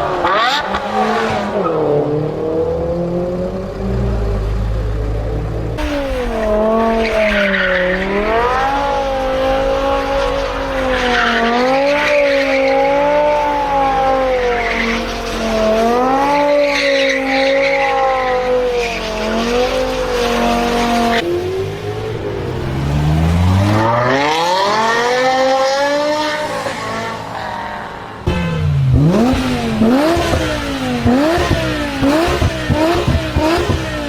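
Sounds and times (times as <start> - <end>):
car engine at high revs: 0.0 - 34.0.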